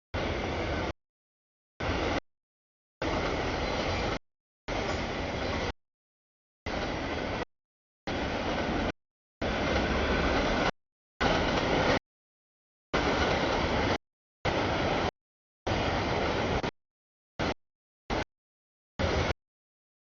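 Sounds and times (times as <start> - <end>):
freight train rumbling past: 0.2 - 0.9, 1.8 - 2.2, 3.0 - 5.7, 6.7 - 7.5, 8.1 - 12.0, 13.0 - 15.1, 15.7 - 16.7, 19.0 - 19.3.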